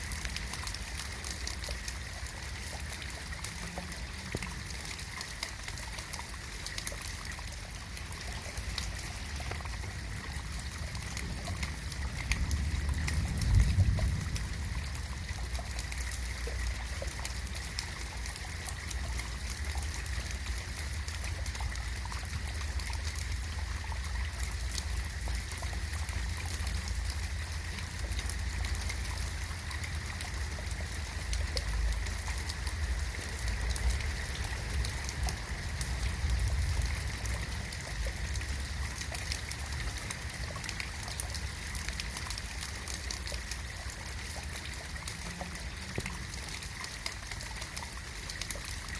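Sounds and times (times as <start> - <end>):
steady rain falling: 0.0 - 48.9
low rumble: 9.8 - 16.3.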